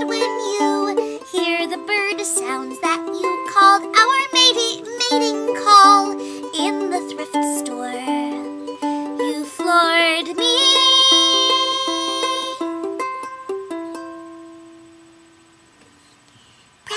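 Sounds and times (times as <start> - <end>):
woman singing: 0.0 - 12.6
plucked ukulele: 0.0 - 14.9.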